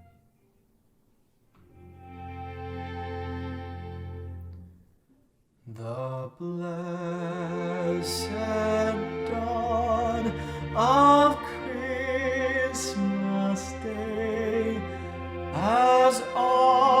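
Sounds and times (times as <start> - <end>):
choir singing: 7.1 - 17.0.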